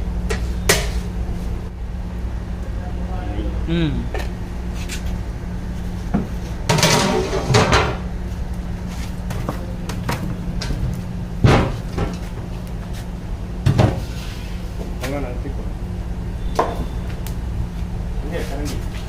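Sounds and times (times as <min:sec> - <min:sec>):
steady low hum: 0:00.0 - 0:19.0
metal cookware clattering: 0:06.7 - 0:08.0.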